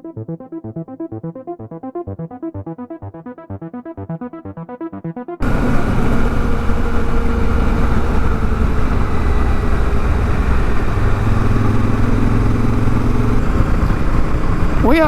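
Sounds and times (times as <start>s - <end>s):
motorcycle engine: 5.4s - 15.0s
wind and road noise: 5.4s - 15.0s.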